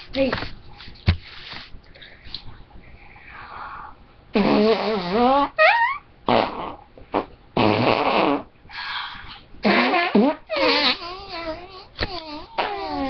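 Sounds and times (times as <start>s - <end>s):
person imitating farting sounds: 4.3s - 8.5s, 9.6s - 13.0s.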